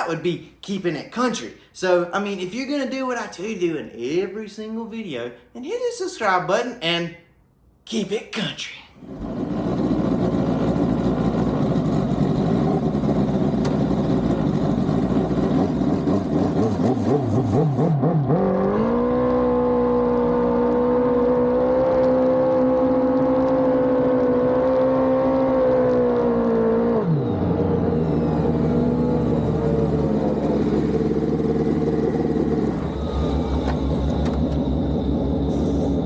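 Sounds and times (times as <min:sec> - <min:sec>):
motorcycle engine revving: 0:09.0 - 0:36.0.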